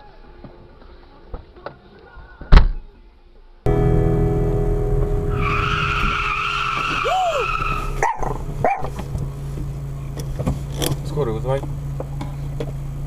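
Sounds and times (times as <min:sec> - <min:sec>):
moving vehicle drone: 0:03.7 - 0:13.0
car tyres screeching: 0:05.2 - 0:13.0.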